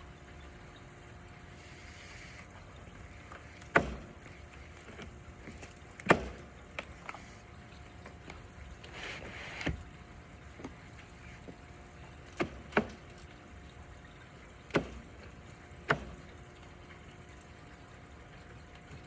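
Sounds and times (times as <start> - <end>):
loud sharp knocks: 3.7 - 4.2.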